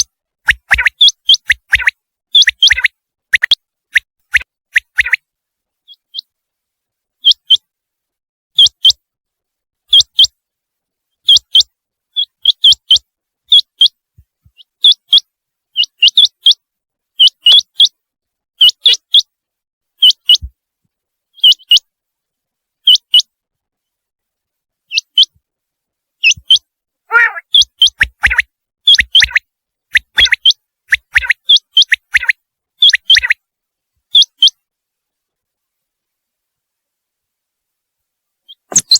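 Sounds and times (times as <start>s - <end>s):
quail calling: 0.0s - 3.6s, 4.8s - 5.2s, 26.2s - 29.4s, 30.0s - 33.4s.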